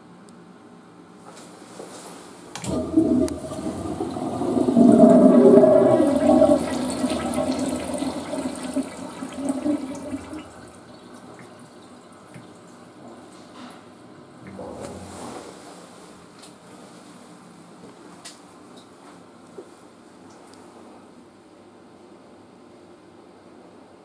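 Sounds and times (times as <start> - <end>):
toilet flushing: 2.6 - 13.5.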